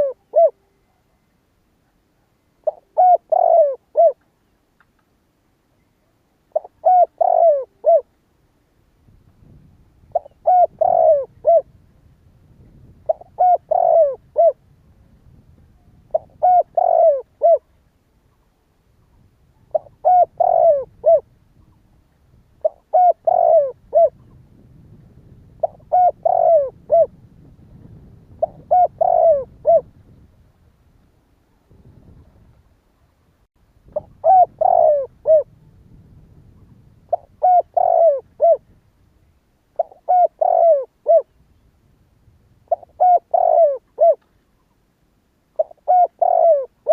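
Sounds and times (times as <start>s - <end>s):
dove cooing: 0.0s - 1.2s, 2.6s - 4.2s, 6.5s - 8.1s, 10.1s - 11.8s, 12.7s - 14.6s, 15.7s - 18.5s, 19.5s - 21.8s, 22.6s - 30.2s, 33.9s - 35.8s, 36.5s - 38.8s, 39.8s - 41.4s, 42.7s - 44.3s, 45.6s - 46.9s
faint low background rumble: 0.0s - 46.9s.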